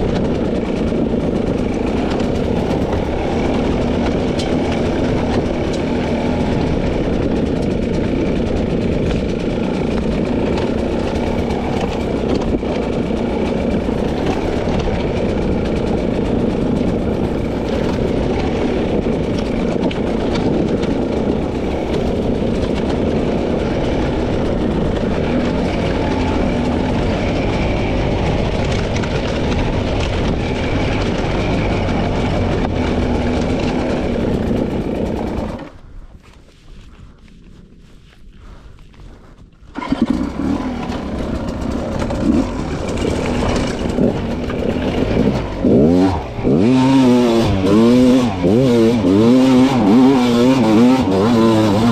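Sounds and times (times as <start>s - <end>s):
two-stroke dirt bike engine: 0.0s - 51.9s.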